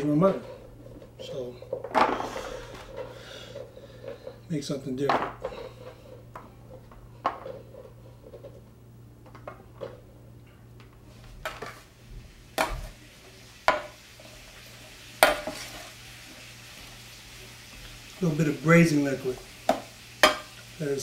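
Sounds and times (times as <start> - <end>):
food sizzling in pan: 11.8 - 21.0
pan and utensils clattering: 13.6 - 16.0, 18.2 - 20.8.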